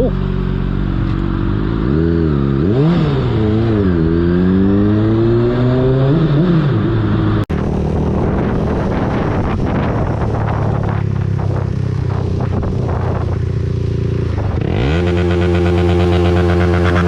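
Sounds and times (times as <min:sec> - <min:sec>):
motorcycle engine revving: 0:00.0 - 0:17.0
wind rush on microphone: 0:07.5 - 0:15.0.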